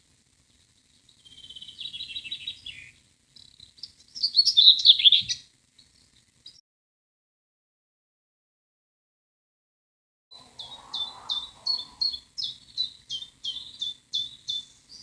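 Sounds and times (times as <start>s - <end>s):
songbird chirping: 0.4s - 6.6s, 10.3s - 15.0s.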